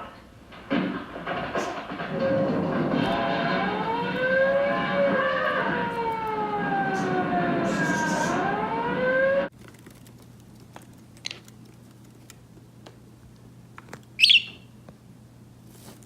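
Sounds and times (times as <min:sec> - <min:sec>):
wailing sirens: 0:02.0 - 0:09.5.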